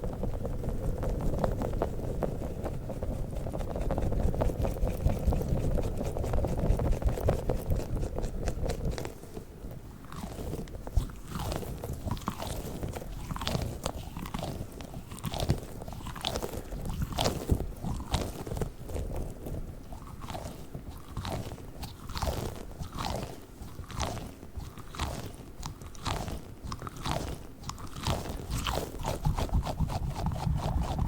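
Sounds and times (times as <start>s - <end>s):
squishy balls squeezed and rubbed: 10.0s - 31.0s.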